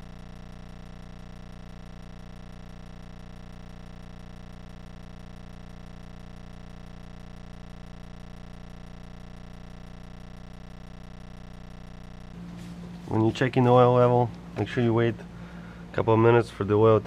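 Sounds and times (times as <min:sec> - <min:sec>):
steady hum with overtones: 0:00.0 - 0:17.0.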